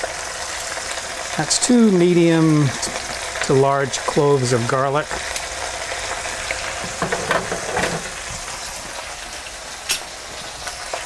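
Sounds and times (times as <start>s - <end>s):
food sizzling in a pot: 0.0s - 11.0s.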